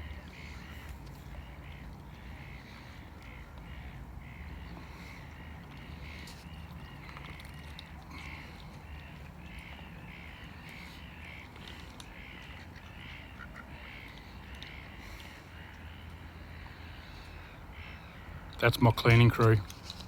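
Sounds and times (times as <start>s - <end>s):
bird calling: 0.0s - 19.8s.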